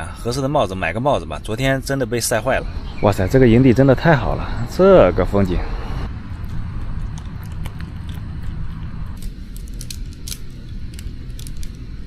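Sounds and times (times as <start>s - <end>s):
steady low rumble: 0.0s - 12.0s
camping gear clicking and clinking: 9.2s - 11.9s.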